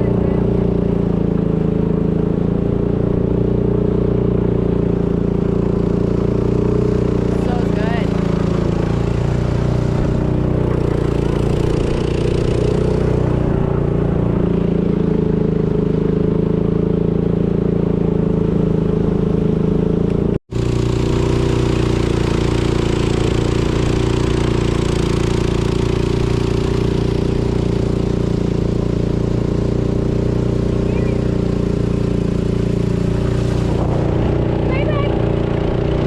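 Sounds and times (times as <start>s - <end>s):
boat engine droning: 0.0s - 36.0s
water wash: 4.4s - 16.6s, 20.5s - 36.0s.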